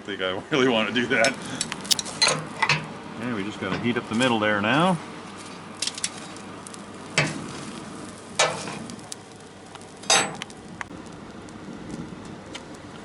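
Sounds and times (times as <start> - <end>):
forge fire hissing and crackling: 5.8 - 13.0.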